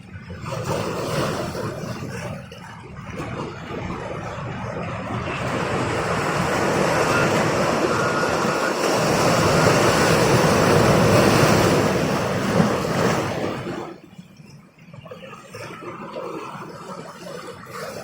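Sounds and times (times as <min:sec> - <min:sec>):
waves rushing: 0:00.0 - 0:14.1
wind: 0:00.0 - 0:18.0.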